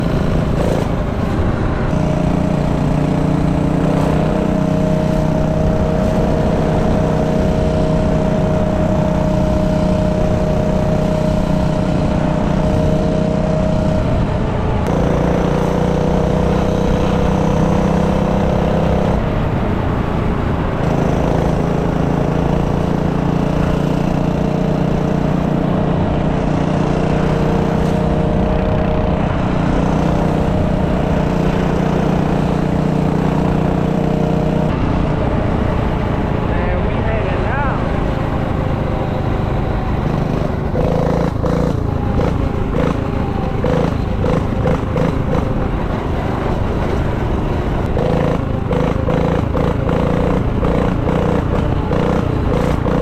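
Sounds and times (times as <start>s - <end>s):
minibike engine running: 0.0s - 53.0s.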